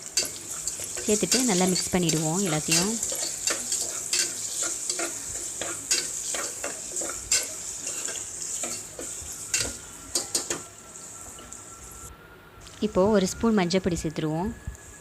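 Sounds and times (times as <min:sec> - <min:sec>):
stirring scraping the pot: 0:00.0 - 0:10.6
food sizzling in hot oil: 0:00.0 - 0:12.1.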